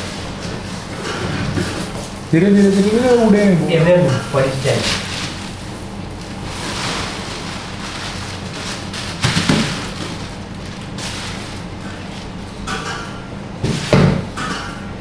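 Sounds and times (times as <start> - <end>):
low machine hum: 0.0 - 15.0
powder pouring onto concrete: 5.0 - 11.7.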